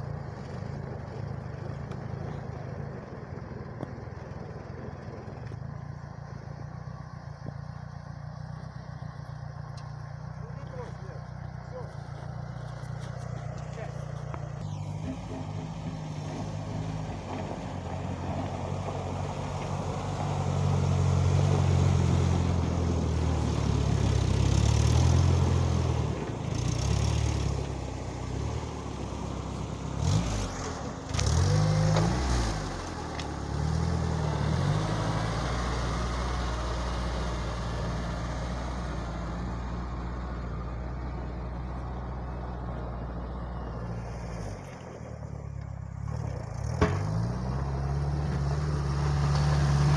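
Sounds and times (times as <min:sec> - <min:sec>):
small tractor engine revving: 0:13.6 - 0:40.3, 0:46.0 - 0:49.9.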